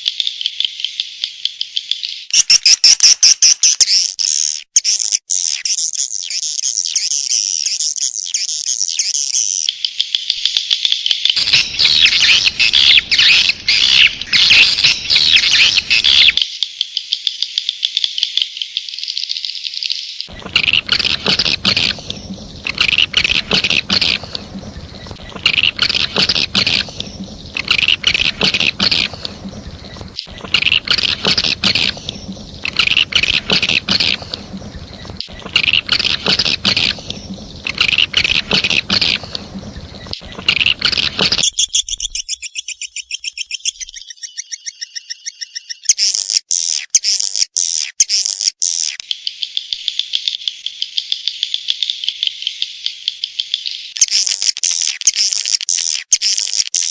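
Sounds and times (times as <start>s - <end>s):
bird chirp trills: 11.4s - 16.4s, 20.3s - 46.0s
buzzing rattling trill: 20.3s - 41.4s.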